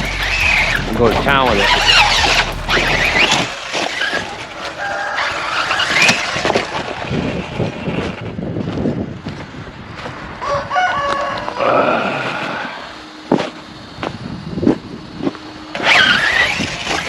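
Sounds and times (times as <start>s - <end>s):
electric motor whining: 0.0s - 8.3s, 11.6s - 17.0s
chicken calling: 10.4s - 13.0s.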